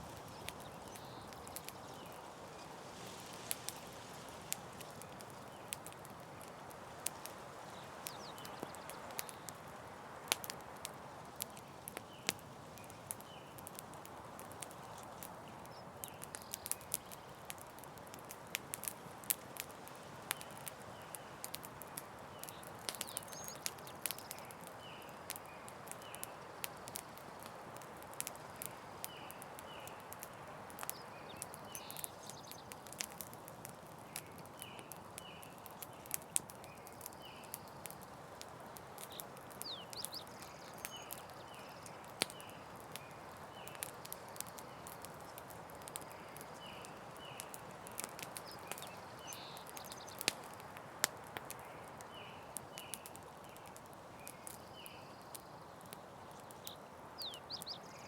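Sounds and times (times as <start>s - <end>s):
campfire crackling: 0.0s - 58.0s.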